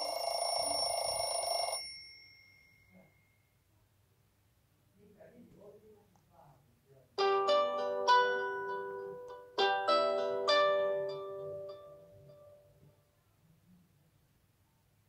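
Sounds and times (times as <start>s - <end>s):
plucked string instrument: 7.2s - 12.9s.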